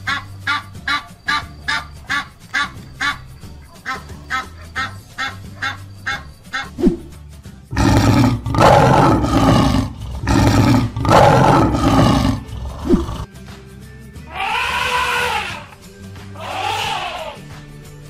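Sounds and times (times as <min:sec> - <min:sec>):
background music: 0:00.0 - 0:18.0
lion roaring: 0:07.7 - 0:13.3.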